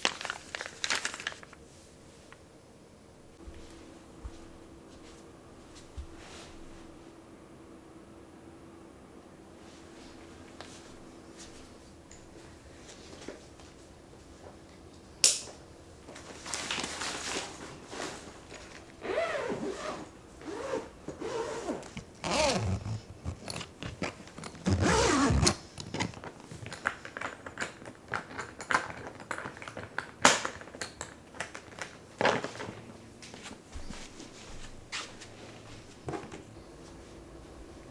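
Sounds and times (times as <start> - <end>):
packaging crinkling and rustling: 0.0 - 1.6, 16.1 - 19.0, 21.8 - 33.6.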